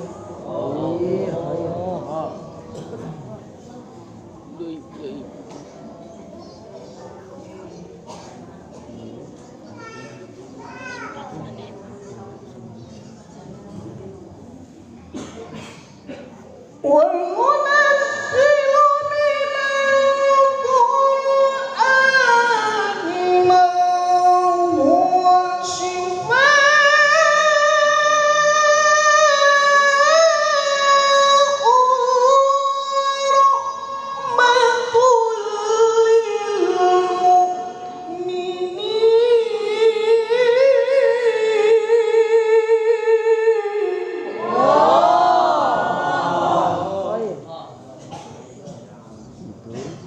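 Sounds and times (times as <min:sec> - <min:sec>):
high voice reciting melodically: 0:16.8 - 0:44.5.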